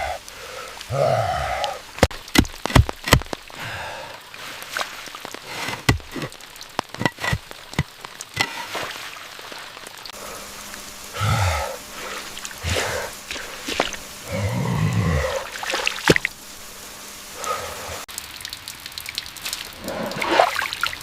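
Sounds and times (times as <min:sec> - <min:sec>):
rain falling: 0:00.0 - 0:21.0.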